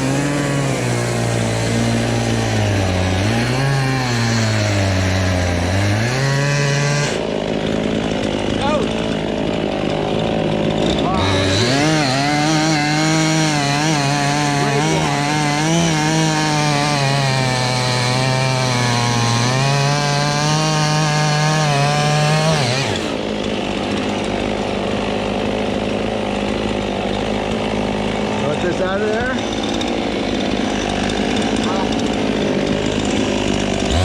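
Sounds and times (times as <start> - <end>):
chainsaw cutting wood: 0.0 - 34.0.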